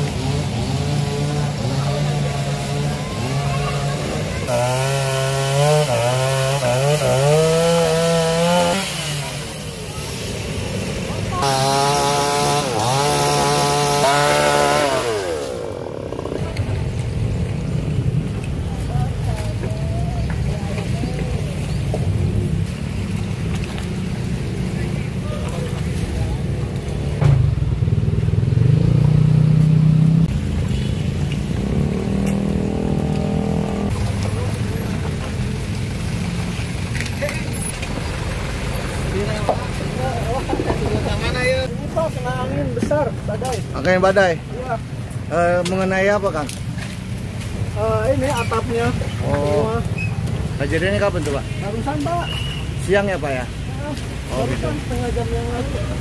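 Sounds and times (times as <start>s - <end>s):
chainsaw cutting wood: 0.0s - 16.7s
small petrol engine running hard: 0.0s - 17.0s.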